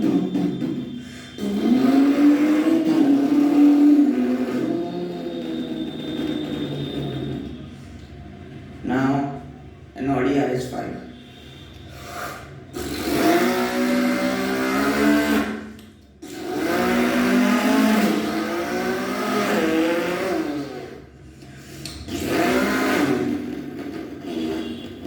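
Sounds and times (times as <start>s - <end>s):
man imitating engine revving: 0.0s - 5.8s, 12.3s - 21.0s, 21.9s - 24.6s.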